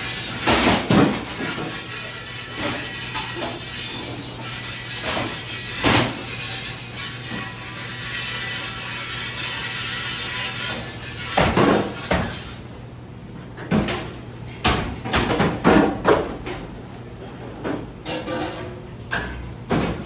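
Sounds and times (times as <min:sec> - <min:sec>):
sharp knocks and clatters: 0:00.0 - 0:12.6.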